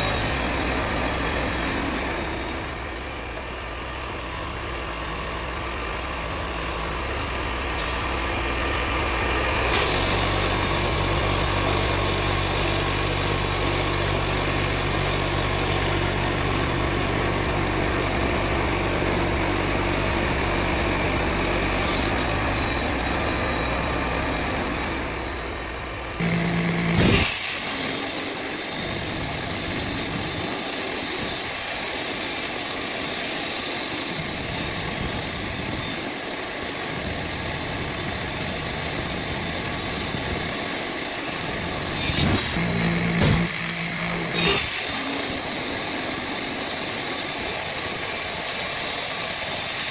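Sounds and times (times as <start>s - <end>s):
band sawmill cutting log: 4.6s - 25.2s, 26.2s - 31.9s, 41.4s - 49.7s.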